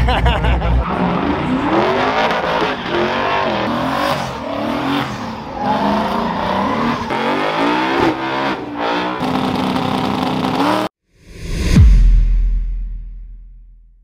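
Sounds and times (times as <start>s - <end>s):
vehicle engines revving: 0.0s - 10.9s.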